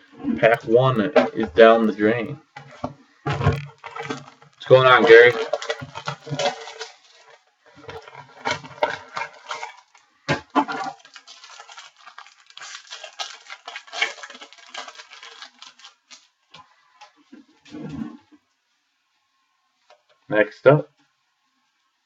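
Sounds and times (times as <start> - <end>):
foil wrappers crinkling: 0.4 - 17.5.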